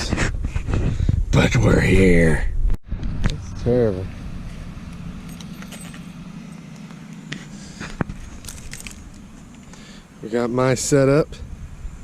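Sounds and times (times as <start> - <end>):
low vehicle hum: 1.0 - 12.0
keys jingling: 5.2 - 6.7, 8.2 - 9.2.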